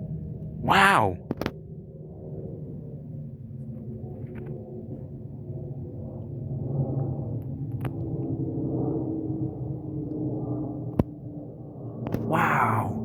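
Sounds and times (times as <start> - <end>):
airliner engines droning overhead: 0.0 - 13.0.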